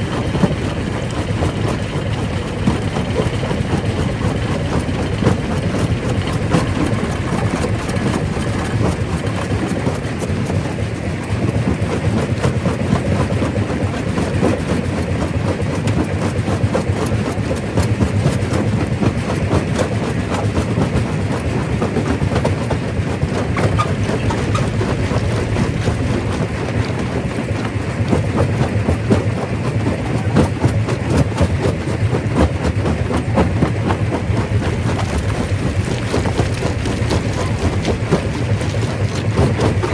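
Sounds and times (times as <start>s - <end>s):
rock crusher rumbling: 0.0s - 15.0s, 19.9s - 39.9s
rock clattering and knocking: 34.4s - 39.9s.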